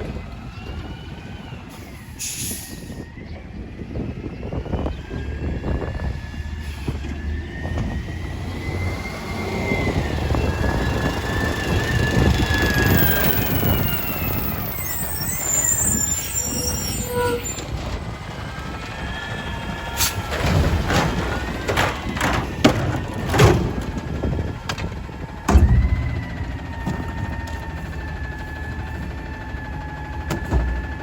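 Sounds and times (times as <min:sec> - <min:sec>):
truck engine rumble: 0:00.0 - 0:31.0
sharp knocks: 0:25.5 - 0:27.7
high whine: 0:25.5 - 0:28.2.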